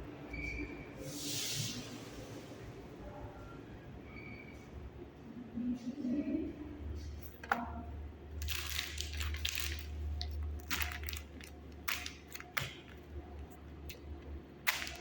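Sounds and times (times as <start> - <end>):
steady low hum: 1.9 - 15.0
packaging crinkling: 8.4 - 15.0.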